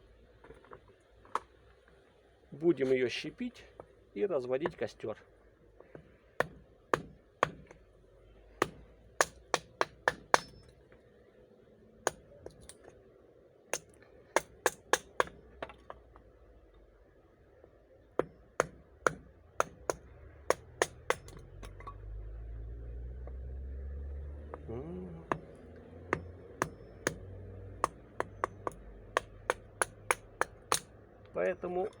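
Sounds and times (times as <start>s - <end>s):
blade splitting wood: 18.2s - 21.8s, 24.5s - 30.9s.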